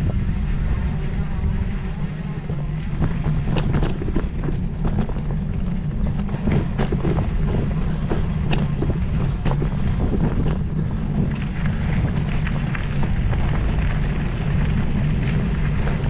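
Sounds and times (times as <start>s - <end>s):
wind buffeting microphone: 0.0s - 16.0s
sharp clicks and rattles: 2.4s - 16.0s.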